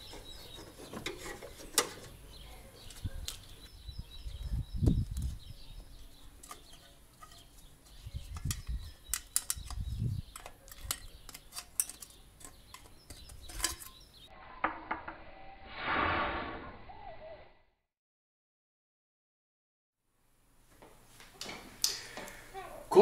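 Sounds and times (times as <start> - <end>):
tools clicking and knocking: 8.3 - 14.0.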